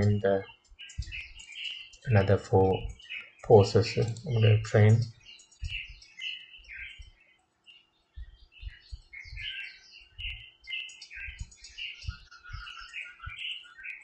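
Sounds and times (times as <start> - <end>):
birds chirping: 0.0 - 14.0
faint clicks: 2.8 - 4.4, 5.0 - 6.1.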